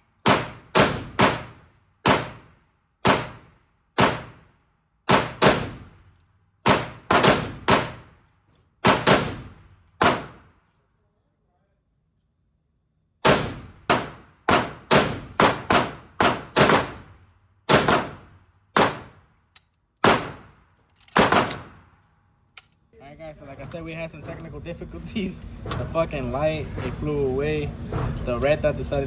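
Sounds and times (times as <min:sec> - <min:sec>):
gunshots with echo: 0:00.2 - 0:04.4, 0:06.7 - 0:08.0, 0:08.8 - 0:10.4, 0:13.2 - 0:17.1, 0:17.7 - 0:19.2, 0:20.0 - 0:20.5, 0:21.2 - 0:21.9.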